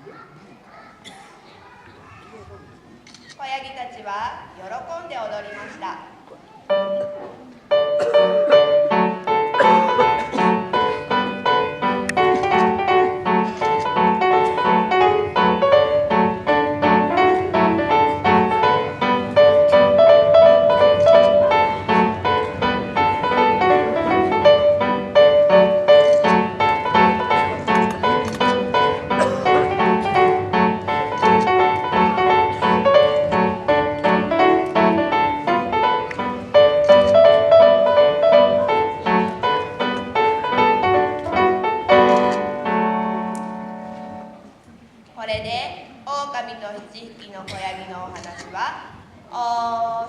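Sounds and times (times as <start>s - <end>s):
lively dance piano music: 6.6s - 44.6s.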